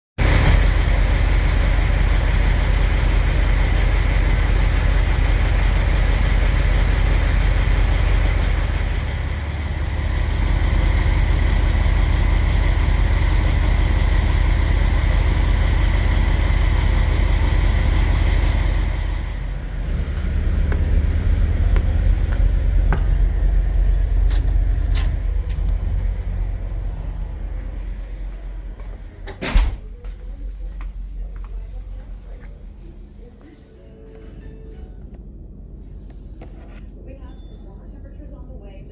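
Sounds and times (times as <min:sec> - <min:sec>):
truck engine rumble: 0:00.2 - 0:38.9
road and wind noise: 0:18.3 - 0:29.8.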